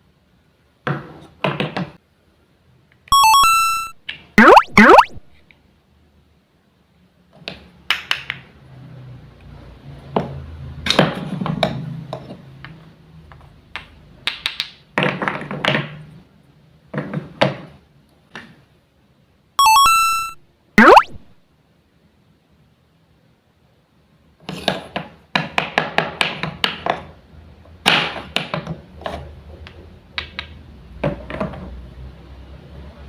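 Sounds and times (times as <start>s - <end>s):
wooden toy taps and clacks: 7.4s - 8.5s, 10.9s - 16.0s, 29.6s - 31.8s.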